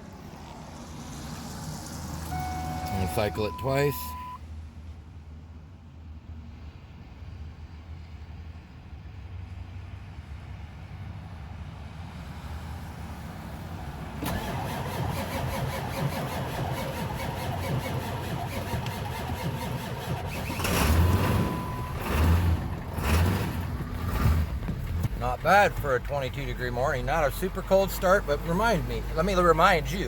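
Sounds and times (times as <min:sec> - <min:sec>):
diesel engine starting and clattering: 0:01.1 - 0:04.4, 0:13.8 - 0:30.0
low engine rumble: 0:15.8 - 0:30.0.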